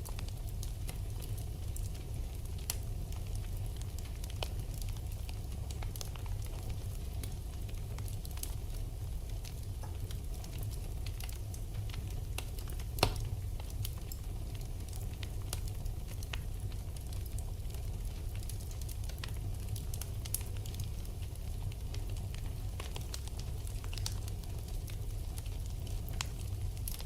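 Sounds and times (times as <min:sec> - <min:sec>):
fire crackles and pops: 0:00.0 - 0:27.0
fire low rumble: 0:00.0 - 0:27.0.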